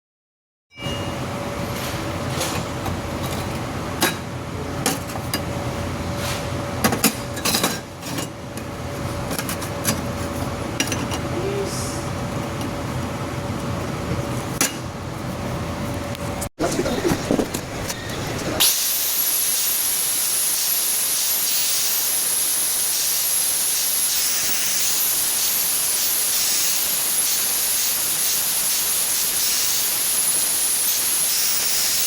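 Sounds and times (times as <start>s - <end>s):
workshop machinery humming: 0.7s - 32.0s.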